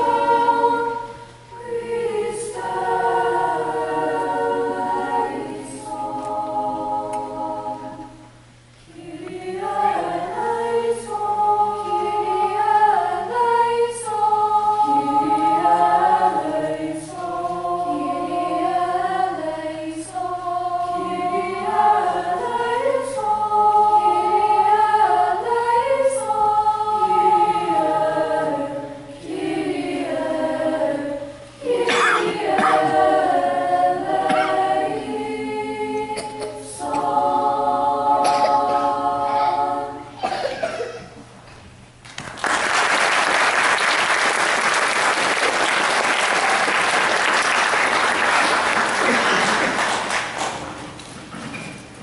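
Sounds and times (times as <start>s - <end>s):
choir singing: 0.0s - 41.0s
audience applauding: 42.1s - 50.8s.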